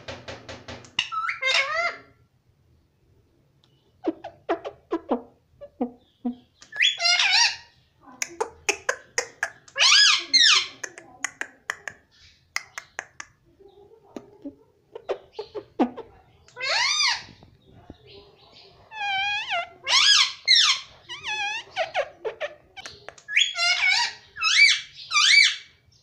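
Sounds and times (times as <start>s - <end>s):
parrot chattering: 1.0s - 2.1s, 4.0s - 13.4s, 14.2s - 17.3s, 18.9s - 25.6s
parrot squawks: 1.0s - 2.1s, 6.8s - 7.7s, 9.7s - 10.8s, 16.6s - 17.3s, 18.9s - 22.5s, 23.3s - 25.7s.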